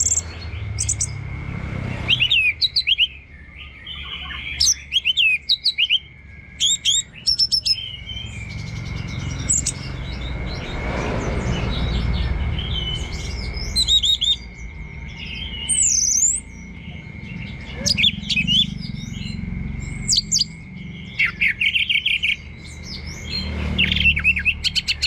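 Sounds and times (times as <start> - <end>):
soft bird chatter: 0.0 - 25.0
thrush singing: 0.0 - 25.0
low rumble: 8.0 - 21.1.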